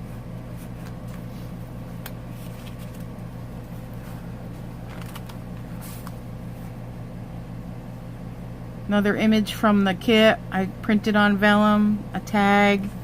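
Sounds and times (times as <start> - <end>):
room hum: 0.0 - 13.0
paper rustling: 2.0 - 4.2, 4.8 - 6.2.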